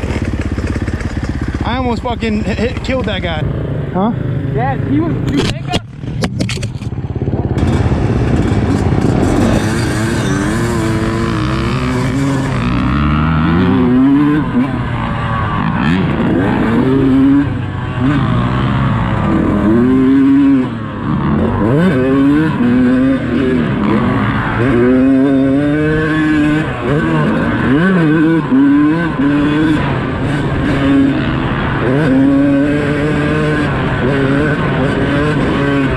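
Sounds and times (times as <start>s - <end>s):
dirt bike engine revving: 0.0s - 35.9s.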